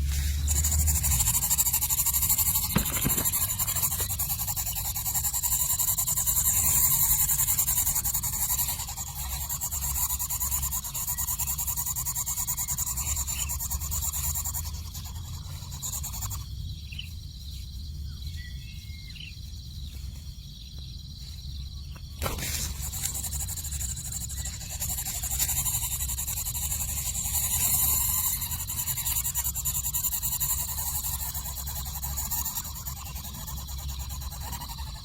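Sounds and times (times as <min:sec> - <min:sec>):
nestlings calling faintly: 0:00.0 - 0:35.0.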